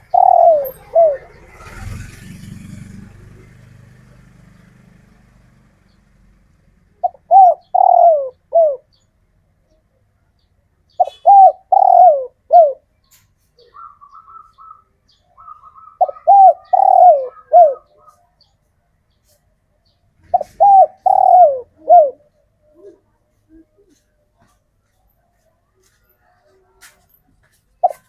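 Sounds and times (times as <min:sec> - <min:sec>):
dove cooing: 0:00.0 - 0:02.9, 0:07.0 - 0:09.0, 0:11.0 - 0:12.9, 0:13.6 - 0:18.4, 0:20.2 - 0:24.1.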